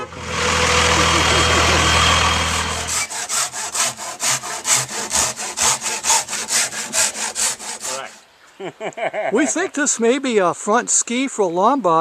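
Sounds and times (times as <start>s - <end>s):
rasping strokes on wood: 0.0s - 8.2s.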